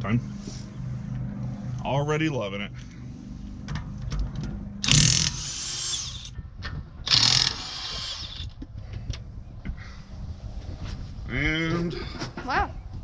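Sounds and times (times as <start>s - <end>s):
impact wrench hammering: 4.8s - 6.4s.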